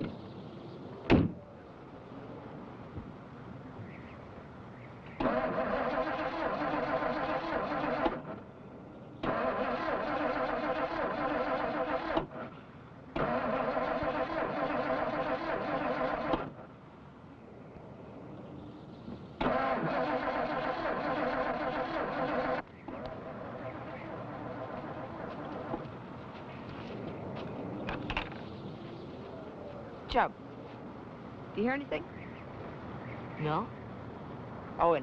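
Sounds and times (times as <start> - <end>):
car door slamming: 1.1 - 1.4
starter cranking engine: 5.2 - 8.4, 9.2 - 12.5, 13.2 - 16.6, 19.4 - 25.8.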